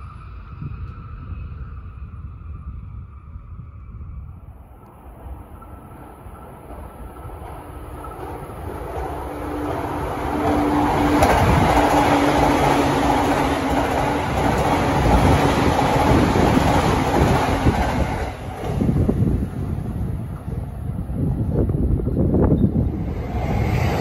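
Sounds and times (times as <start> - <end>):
train hum: 0.0 - 24.0
train wheels rushing on rail: 4.8 - 24.0
wheels clickety-clack: 6.4 - 19.0.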